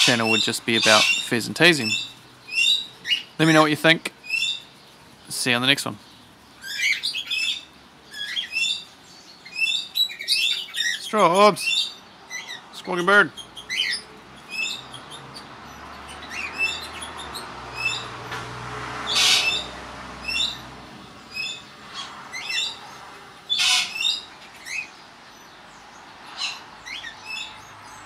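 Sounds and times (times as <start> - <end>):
parrot screeching: 0.0 - 1.3, 19.1 - 20.6, 23.5 - 24.9
parrots chirping: 0.0 - 18.3, 18.9 - 28.0.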